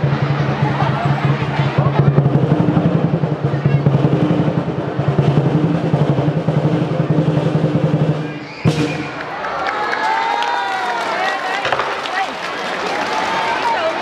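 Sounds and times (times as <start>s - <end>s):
sharp drum hit: 0.0s - 9.2s
drum roll: 0.0s - 9.4s.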